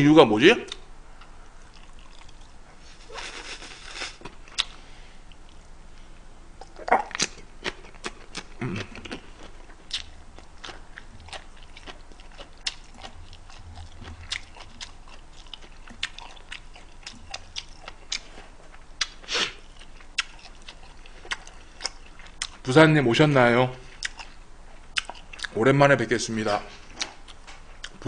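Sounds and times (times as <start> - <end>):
wet chewing clicks and crunches: 1.6 - 2.5, 6.6 - 18.4, 19.0 - 22.7, 24.0 - 25.6.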